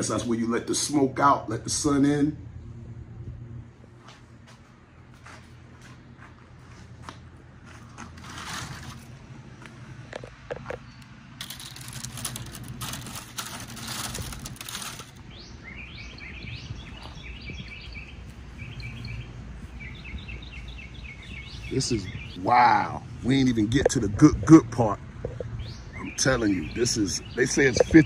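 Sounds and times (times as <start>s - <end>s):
rustling and handling noise: 11.4s - 15.2s
bird singing chirps: 14.9s - 23.5s, 25.2s - 28.0s.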